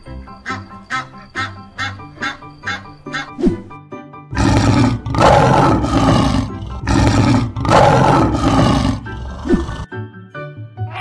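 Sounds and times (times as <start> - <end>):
lion roaring: 4.3 - 9.9
children's music: 9.9 - 11.0.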